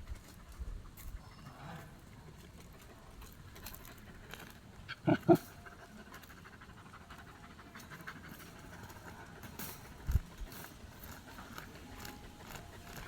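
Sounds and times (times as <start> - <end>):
dog barking: 5.0 - 5.4.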